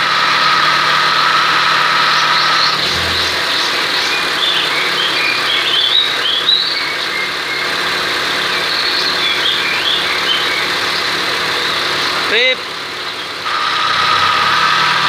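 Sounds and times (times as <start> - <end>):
wavering high whine: 0.0 - 6.2
engine idling: 0.0 - 15.0
air-conditioning compressor growl: 1.1 - 6.4.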